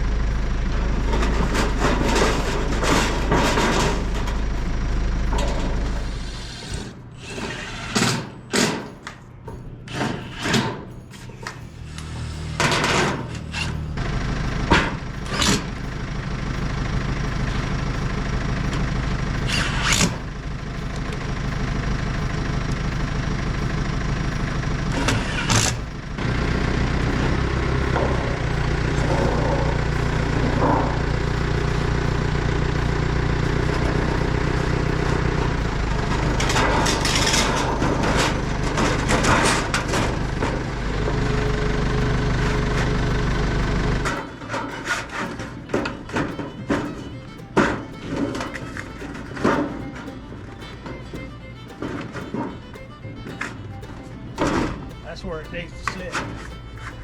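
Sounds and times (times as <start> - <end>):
engine running: 0.0 - 57.0
sharp knocks: 12.5 - 57.0.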